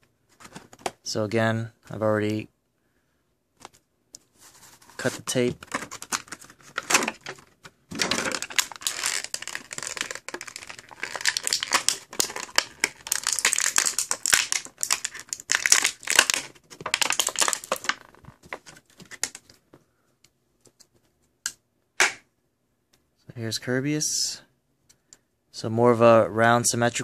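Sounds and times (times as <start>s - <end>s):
packaging crinkling and rustling: 0.3s - 1.0s, 4.4s - 19.6s.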